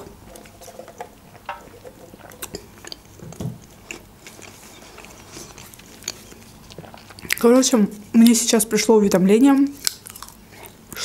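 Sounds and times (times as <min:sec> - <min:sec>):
person chewing: 0:02.0 - 0:08.1, 0:09.7 - 0:11.0.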